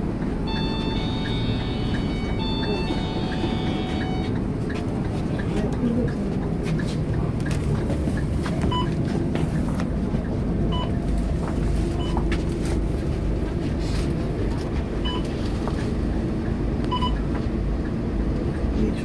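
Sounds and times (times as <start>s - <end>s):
bus diesel engine rumbling: 0.0s - 19.0s
two-tone electronic beep: 0.5s - 4.4s, 16.9s - 17.2s.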